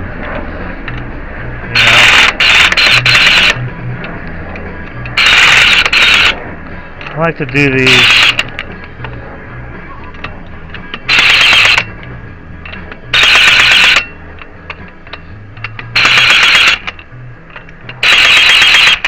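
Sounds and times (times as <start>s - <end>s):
impact wrench bursts: 1.8s - 3.6s, 5.2s - 6.4s, 7.9s - 8.4s, 11.1s - 11.9s, 13.1s - 14.1s, 16.0s - 16.9s, 18.0s - 19.0s.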